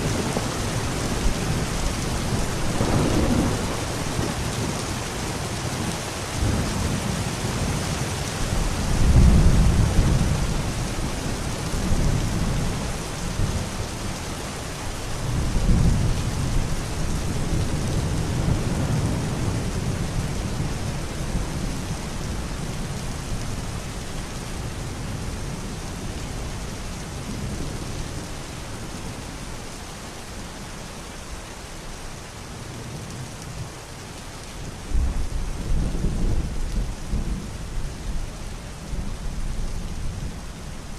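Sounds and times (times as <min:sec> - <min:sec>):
rolling thunder: 0:00.0 - 0:05.4, 0:08.6 - 0:13.7
steady rain: 0:00.0 - 0:40.9.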